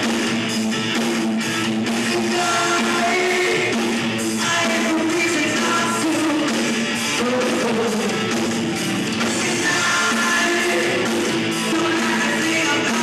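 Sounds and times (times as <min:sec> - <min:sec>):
rock band playing live: 0:00.0 - 0:13.0
person singing: 0:02.0 - 0:08.4, 0:09.2 - 0:13.0.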